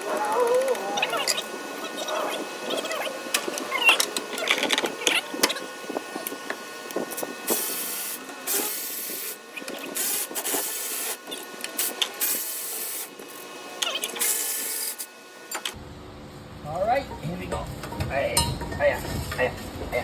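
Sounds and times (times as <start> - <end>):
metal tools clinking: 17.1 - 20.0.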